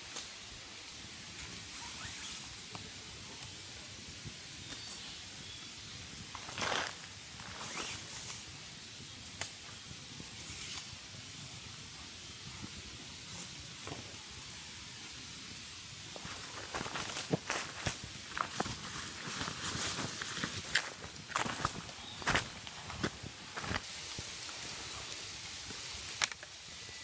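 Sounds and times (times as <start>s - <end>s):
steady hiss: 0.0s - 27.0s
crunching clicks and rustles: 16.2s - 24.6s.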